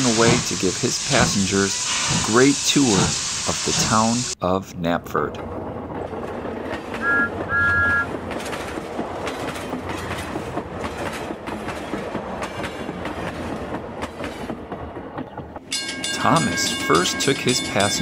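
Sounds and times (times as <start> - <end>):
train rumbling along rails: 0.0 - 4.4, 5.0 - 18.0
two-note train whistle: 7.0 - 8.1.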